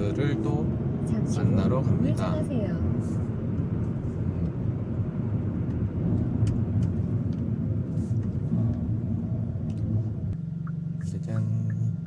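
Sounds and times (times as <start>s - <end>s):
car engine drone inside car: 0.0s - 12.0s
road noise: 0.0s - 12.0s.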